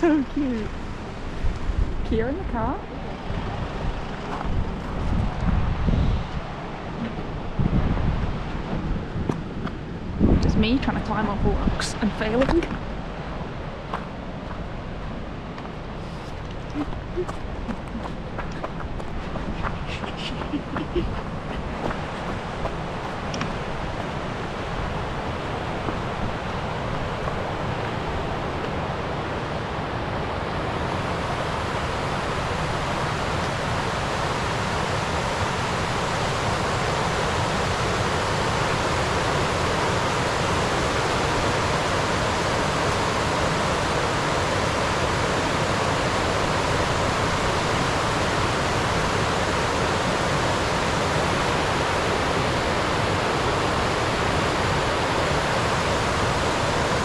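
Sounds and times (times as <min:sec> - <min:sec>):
rushing river water: 0:10.9 - 0:57.0.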